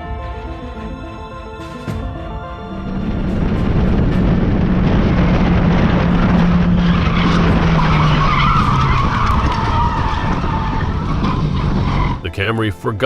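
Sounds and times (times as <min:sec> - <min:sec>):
car engine humming: 0:01.6 - 0:12.4
tyres squealing in a skid: 0:04.2 - 0:12.3.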